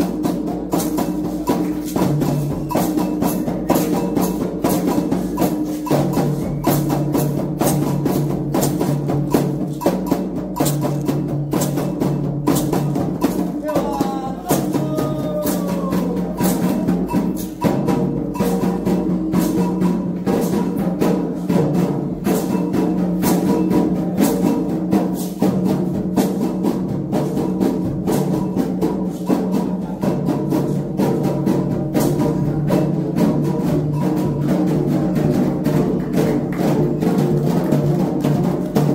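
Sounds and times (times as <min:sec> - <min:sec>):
metal bell beating: 0:00.0 - 0:20.8, 0:33.6 - 0:34.9
hand drums beating: 0:00.0 - 0:38.9
voices singing a chant: 0:13.4 - 0:17.1.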